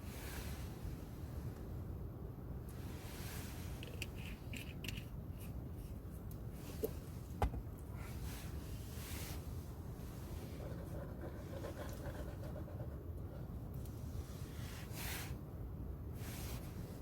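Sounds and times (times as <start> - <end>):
steady low rumble: 0.0 - 17.0
light clicks and scrapes: 2.7 - 7.2.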